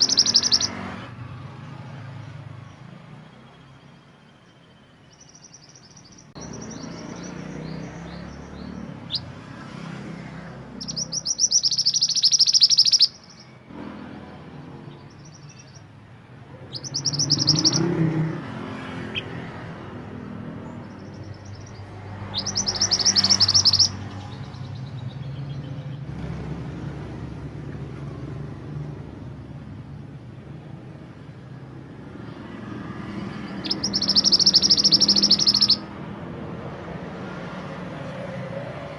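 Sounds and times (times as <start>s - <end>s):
songbird chattering trills: 0.0s - 0.8s, 5.0s - 9.4s, 10.7s - 13.6s, 16.5s - 18.2s, 20.6s - 26.1s, 33.3s - 35.9s.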